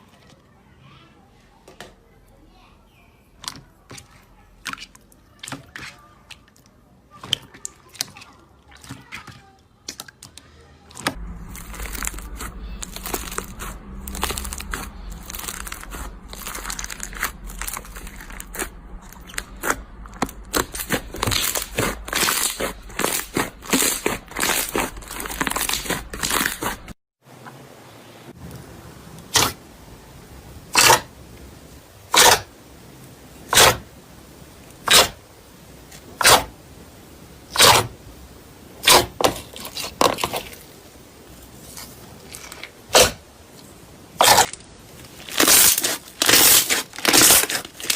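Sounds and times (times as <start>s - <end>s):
slime crackling and popping: 11.0s - 27.0s, 44.2s - 47.9s.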